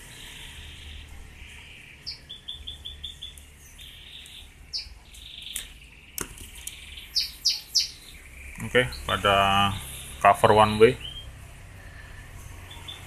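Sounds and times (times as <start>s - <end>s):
birds chirping: 0.0s - 13.0s
steady low hum: 0.0s - 13.0s
sharp clicks: 5.1s - 6.8s.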